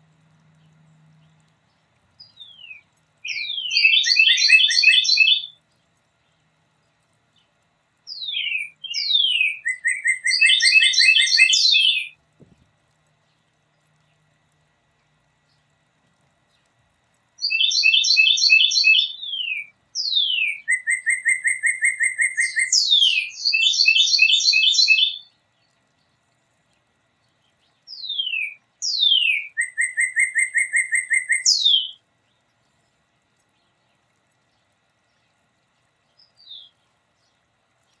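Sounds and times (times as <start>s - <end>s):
songbird singing trills and whistles: 2.2s - 5.6s, 8.1s - 12.2s, 17.4s - 25.7s, 27.4s - 32.5s, 36.0s - 38.0s.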